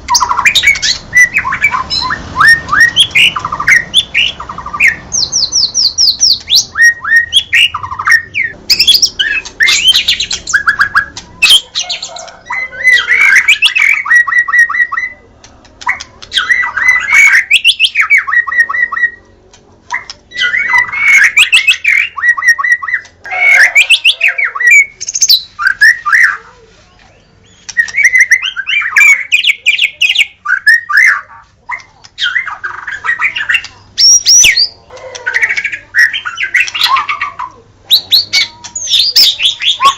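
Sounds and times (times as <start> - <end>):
bird singing whistled notes: 0.1 - 11.6.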